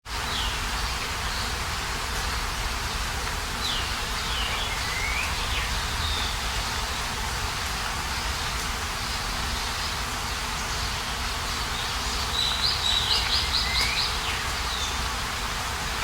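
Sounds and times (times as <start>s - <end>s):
steady hiss: 0.1s - 16.0s
small birds whistling calls: 3.6s - 7.0s, 9.6s - 15.1s.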